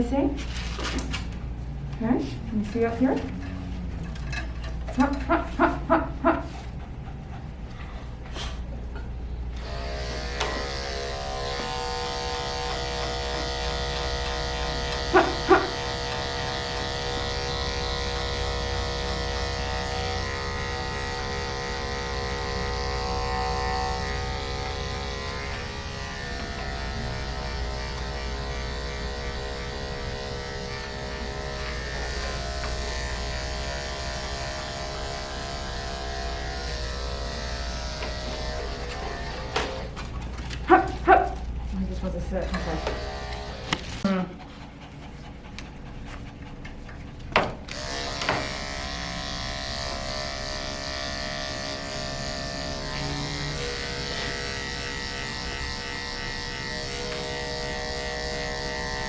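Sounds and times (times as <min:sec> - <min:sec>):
electric clipper buzzing: 0:09.4 - 0:40.0, 0:42.3 - 0:44.1, 0:47.6 - 0:59.0.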